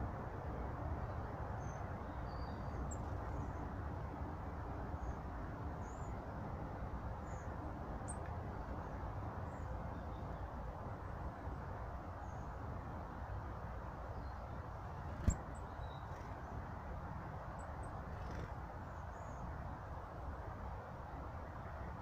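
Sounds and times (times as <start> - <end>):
faint high bird chirps: 1.6 - 3.1.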